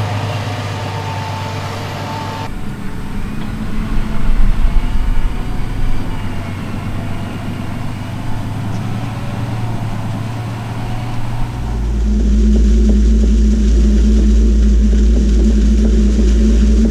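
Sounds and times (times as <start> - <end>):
tractor engine running under load: 0.0 - 12.5.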